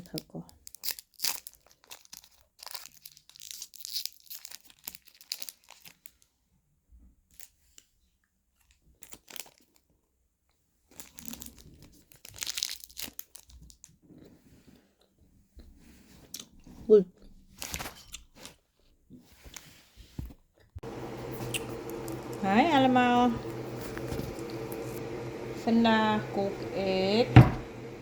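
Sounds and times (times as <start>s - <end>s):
plastic packaging crinkling: 0.6s - 6.2s.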